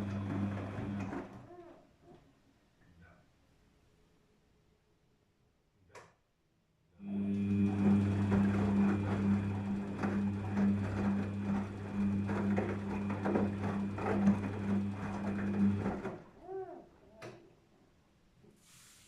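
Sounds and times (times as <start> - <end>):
water and laundry sloshing: 0.0 - 1.4, 7.7 - 16.4
washing machine motor humming: 0.0 - 1.6, 7.0 - 16.7.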